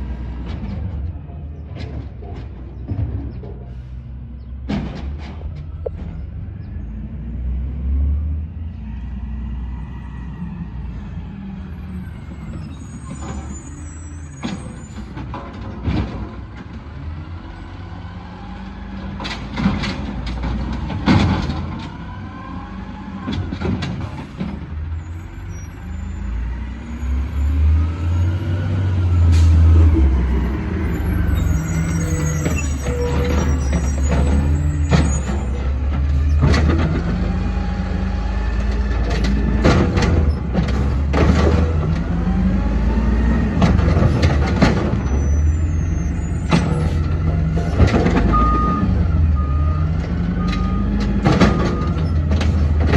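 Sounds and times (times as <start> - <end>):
knocks and clanks: 1.7 - 3.8, 4.6 - 6.2, 14.4 - 16.8, 19.2 - 22.0, 23.3 - 24.7, 32.2 - 37.4, 38.6 - 42.2, 43.5 - 45.2, 46.4 - 48.8, 50.0 - 52.9
garbage truck engine revving: 5.4 - 52.9.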